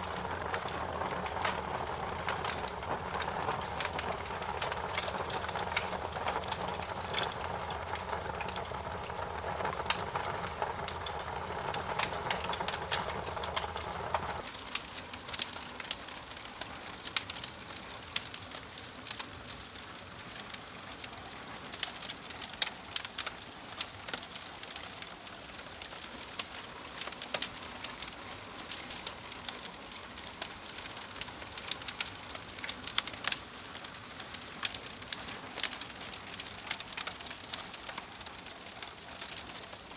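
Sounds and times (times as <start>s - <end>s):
steady low background sound: 0.0s - 14.5s
wood fire crackling and popping: 0.0s - 39.9s.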